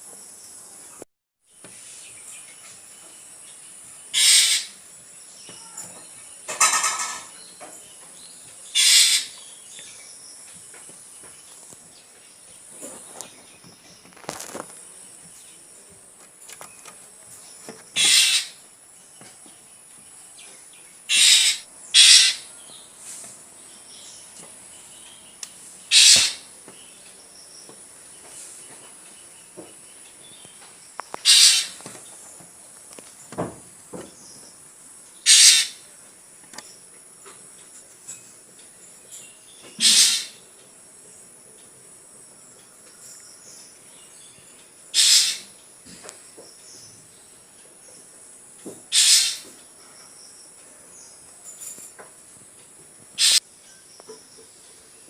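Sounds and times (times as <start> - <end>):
steady high hiss: 0.0 - 55.0
drongo short calls: 4.1 - 4.8, 8.7 - 9.7, 17.9 - 18.7, 21.1 - 22.8, 25.4 - 27.3, 31.1 - 31.9, 35.2 - 36.0, 39.7 - 40.6, 44.9 - 46.0, 48.9 - 49.6, 53.2 - 53.5.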